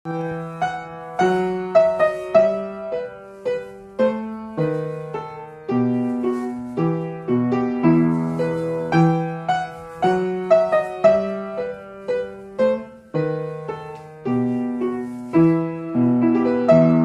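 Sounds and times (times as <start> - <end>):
solo piano chords: 0.0 - 17.0.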